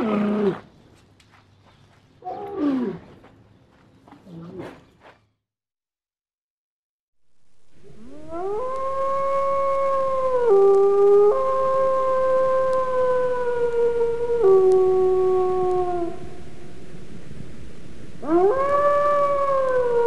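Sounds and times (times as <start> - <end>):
wolf howling: 2.2 - 3.1, 8.0 - 16.3, 18.2 - 20.0.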